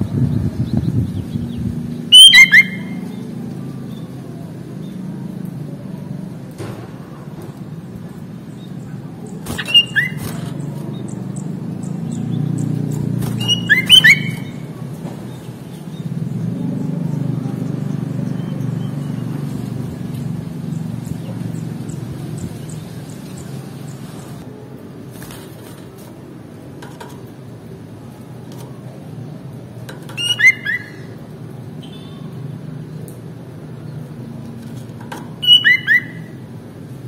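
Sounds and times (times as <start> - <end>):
bird chirping: 0.0 - 4.2, 7.8 - 24.4, 30.1 - 31.2, 35.4 - 36.4.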